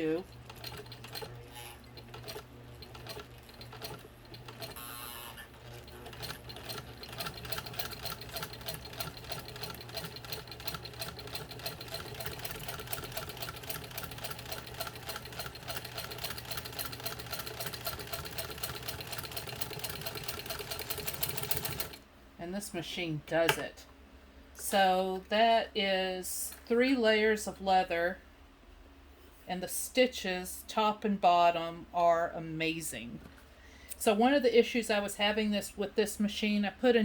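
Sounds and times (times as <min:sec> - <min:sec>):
sewing machine stitching: 0:00.0 - 0:22.0
sewing machine clicks: 0:00.3 - 0:04.8, 0:05.8 - 0:22.0.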